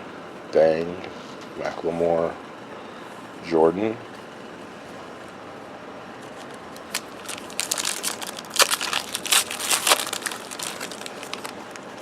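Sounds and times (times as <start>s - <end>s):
wrapper tearing and crinkling: 6.3s - 12.0s.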